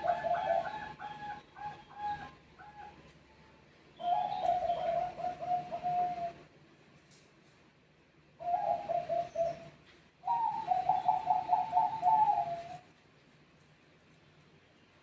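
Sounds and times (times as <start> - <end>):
dove cooing: 0.0 - 3.0, 4.0 - 6.5, 8.4 - 12.9.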